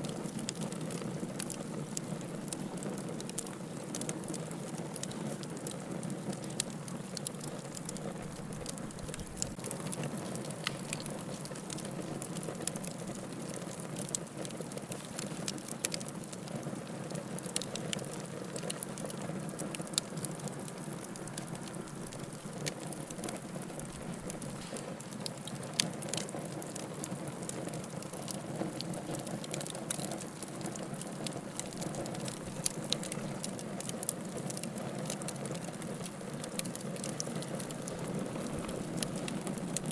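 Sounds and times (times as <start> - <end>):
fire crackling and popping: 0.0 - 39.9
fire hissing: 7.2 - 16.1.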